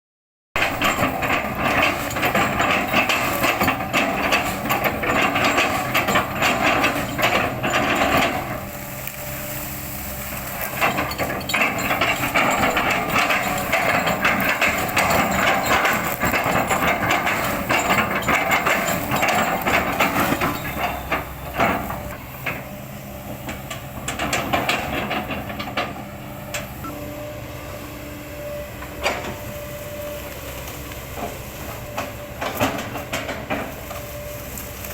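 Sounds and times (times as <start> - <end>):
excavator engine hum: 0.6 - 34.9
wood crackling and splintering: 1.7 - 22.2.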